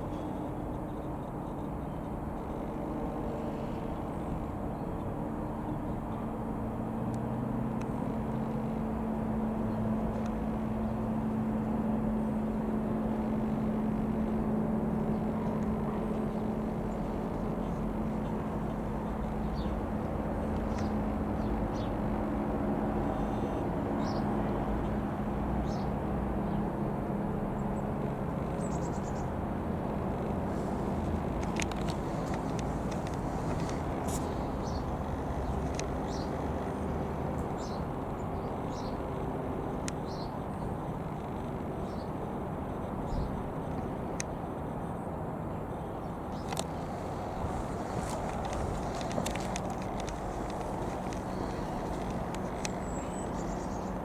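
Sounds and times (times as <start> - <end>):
light aircraft engine droning: 0.0 - 54.0
bird chirps: 50.9 - 54.0.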